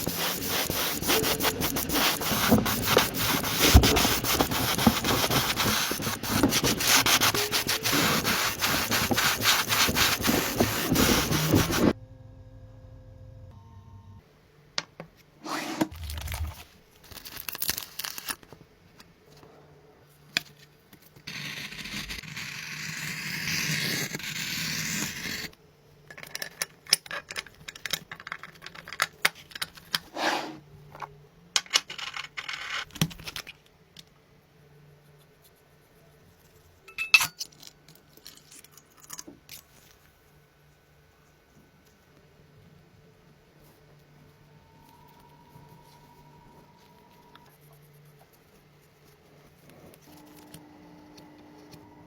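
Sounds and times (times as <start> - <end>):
scraping and rubbing: 0.0 - 12.0, 30.0 - 30.6.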